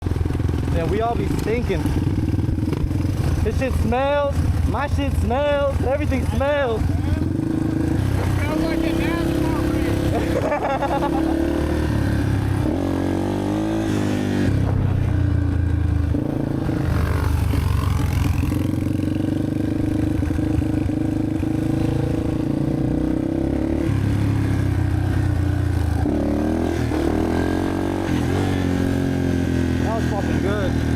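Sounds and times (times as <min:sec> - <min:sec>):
dirt bike engines idling: 0:00.1 - 0:12.7, 0:27.2 - 0:30.9
engine revving: 0:00.5 - 0:30.9.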